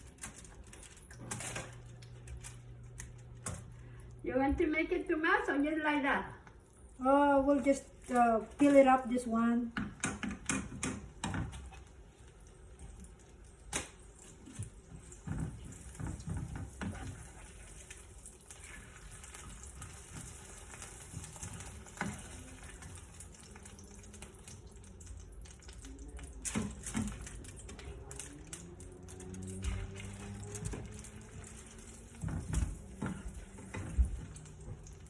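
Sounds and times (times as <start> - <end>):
utensils and dishes clicking: 0.0 - 3.7, 19.1 - 35.0.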